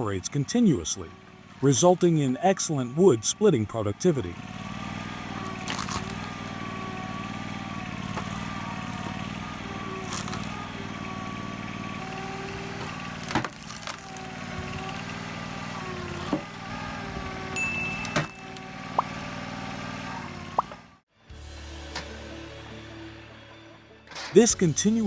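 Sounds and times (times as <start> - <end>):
wood splitter engine running: 0.0 - 21.1, 24.1 - 25.0
logs cracking: 5.4 - 6.4, 10.0 - 10.8, 12.2 - 16.6.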